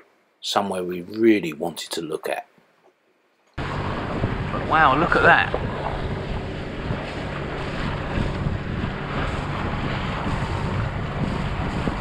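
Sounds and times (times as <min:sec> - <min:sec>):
low engine hum: 0:03.6 - 0:12.0
water rushing along hull: 0:03.6 - 0:12.0
wind buffeting microphone: 0:03.6 - 0:12.0.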